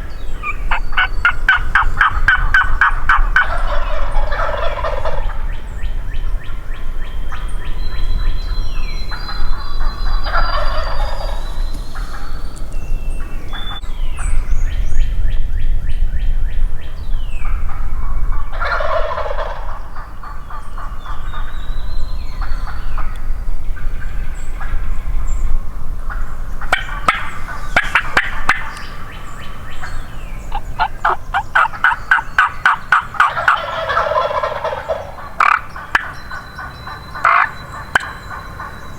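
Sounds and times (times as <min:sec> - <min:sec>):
songbirds chirping: 0:00.0 - 0:38.9
turkeys gobbling: 0:00.4 - 0:05.5, 0:09.2 - 0:12.7, 0:18.5 - 0:21.5, 0:26.0 - 0:38.9.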